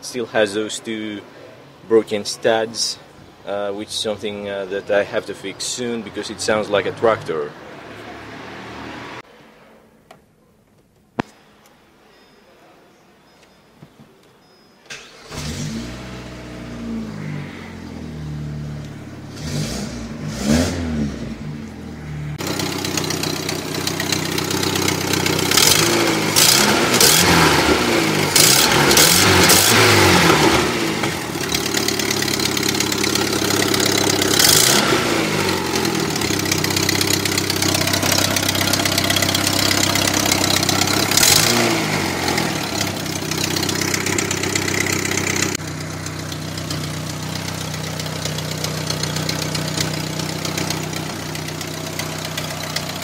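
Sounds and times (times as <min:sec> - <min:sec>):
car engine starting and revving: 0:06.3 - 0:09.2, 0:14.9 - 0:53.0.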